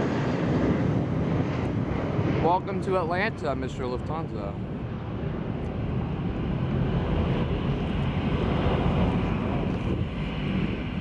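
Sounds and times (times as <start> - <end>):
jet airliner engine rumble: 0.0 - 11.0.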